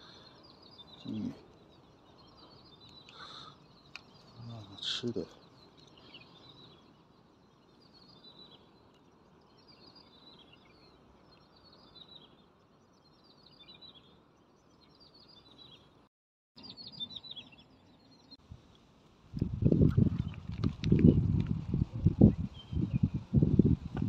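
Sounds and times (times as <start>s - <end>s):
open air hiss: 0.0s - 9.9s
faint bird chirps: 0.0s - 16.0s, 16.6s - 18.4s.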